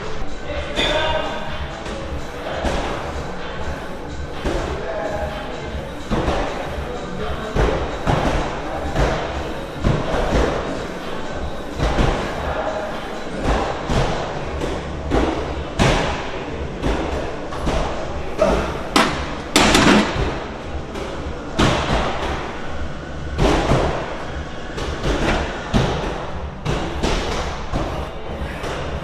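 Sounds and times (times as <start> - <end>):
steady low hum: 0.0 - 29.0
gym equipment thuds: 13.4 - 22.4, 24.7 - 29.0.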